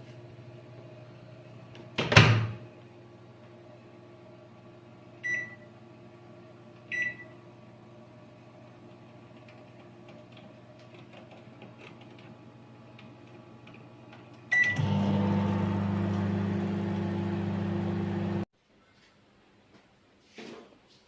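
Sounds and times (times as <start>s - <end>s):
microwave oven humming: 0.0s - 18.5s
microwave beep: 5.2s - 5.7s, 6.9s - 7.4s, 14.5s - 18.4s.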